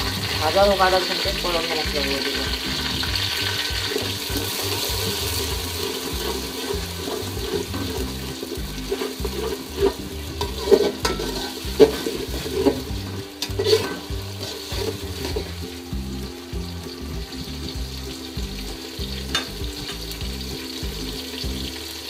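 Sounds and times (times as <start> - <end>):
onions sizzling in hot oil: 0.0 - 22.0
metal spatula scraping a pot: 2.8 - 15.8.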